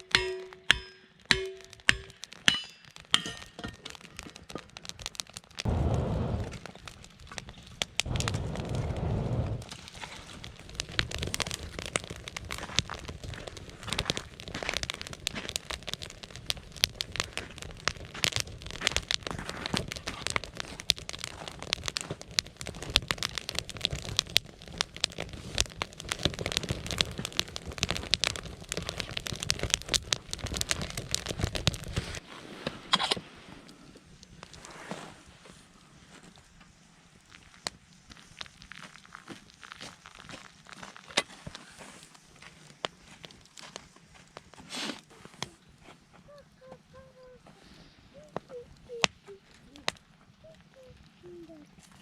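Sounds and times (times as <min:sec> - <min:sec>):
burning wood crackling: 0:00.0 - 0:52.0
low rumbling: 0:05.6 - 0:19.3.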